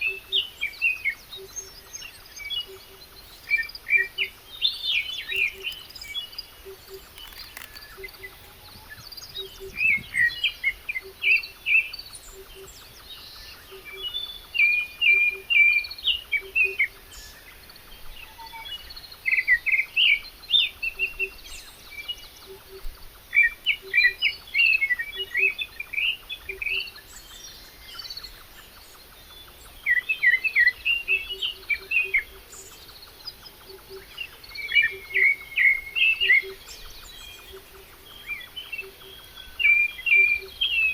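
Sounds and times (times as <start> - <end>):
songbird chirping: 0.0 - 40.9.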